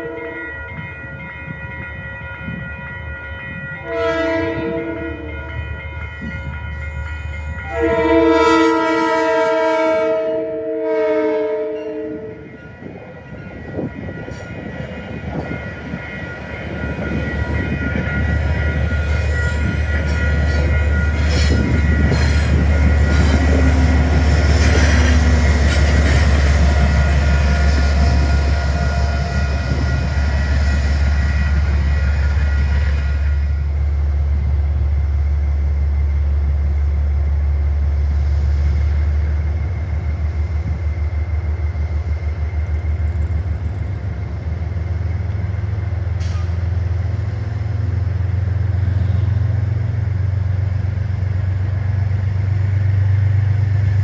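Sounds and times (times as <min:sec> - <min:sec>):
deep locomotive hum: 0:00.0 - 0:54.0
diesel train rolling past: 0:00.0 - 0:54.0
high-pitched tones: 0:11.8 - 0:33.6.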